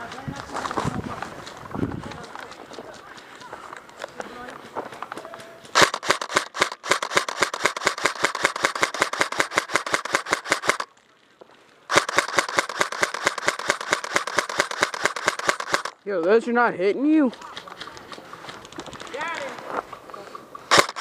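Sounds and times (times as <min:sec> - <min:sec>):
airsoft gun automatic fire: 0:05.7 - 0:10.9, 0:11.9 - 0:15.9, 0:20.7 - 0:21.0.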